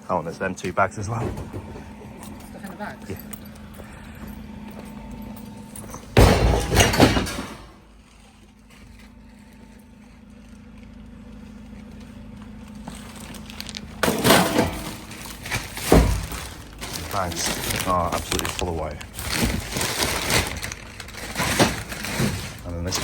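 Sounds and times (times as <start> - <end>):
steady low hum: 0.0 - 23.0
scrap metal clattering: 6.0 - 7.8, 13.3 - 23.0.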